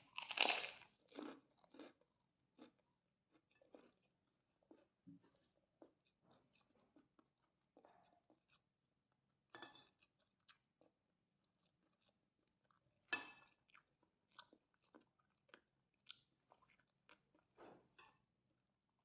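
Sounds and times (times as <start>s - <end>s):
crunching and chewing: 0.0s - 5.0s, 9.9s - 17.9s.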